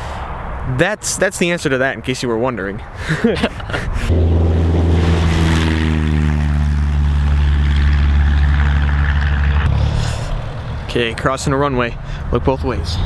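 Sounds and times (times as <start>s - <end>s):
engine humming: 4.1s - 10.9s.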